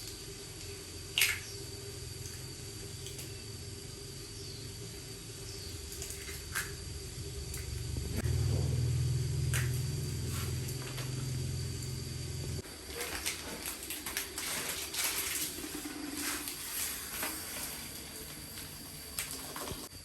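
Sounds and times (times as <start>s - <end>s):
low motor hum: 0.1s - 12.6s.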